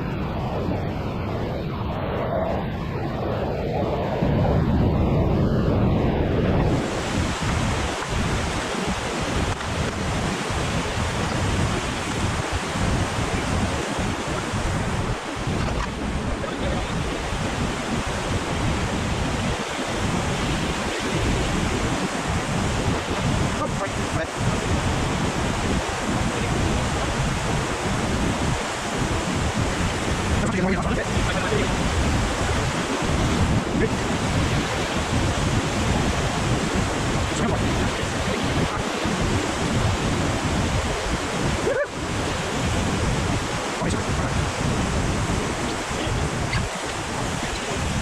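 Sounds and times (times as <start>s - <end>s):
wind buffeting microphone: 0.0s - 48.0s
river rapid rushing: 6.6s - 48.0s.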